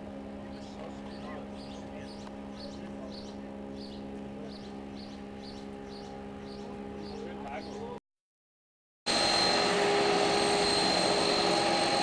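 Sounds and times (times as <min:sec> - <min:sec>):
steady low hum: 0:00.0 - 0:08.0
small bird chirping: 0:00.5 - 0:08.0.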